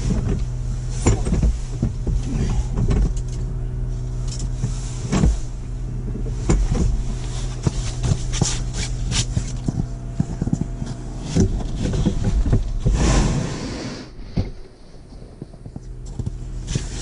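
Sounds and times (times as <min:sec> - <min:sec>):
knocks and clicks of gear: 0:00.0 - 0:13.4, 0:14.1 - 0:17.0
low machine hum: 0:00.0 - 0:17.0.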